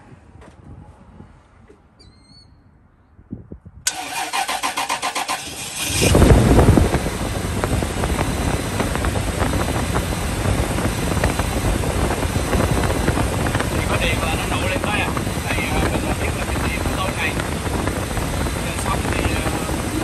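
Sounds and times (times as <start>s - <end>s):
car starter cranking engine: 3.9s - 7.0s
car engine idling: 3.9s - 20.0s.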